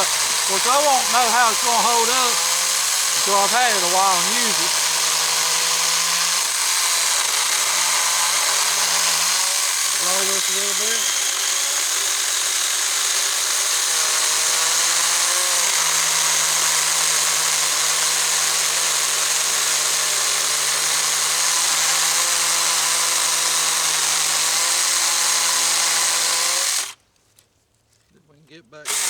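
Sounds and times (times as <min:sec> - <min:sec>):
electric chainsaw motor whine: 0:00.0 - 0:27.0.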